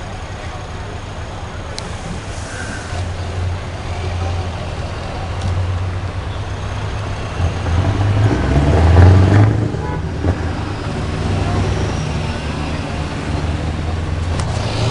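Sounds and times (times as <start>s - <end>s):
truck engine running: 9.8s - 14.9s.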